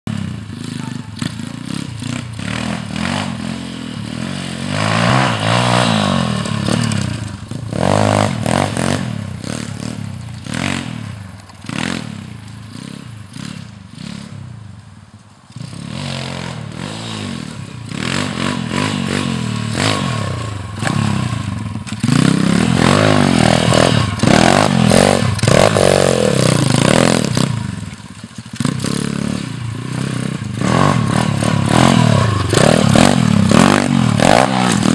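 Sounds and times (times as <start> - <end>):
pitbike engine revving: 0.2 - 14.4, 15.6 - 34.9.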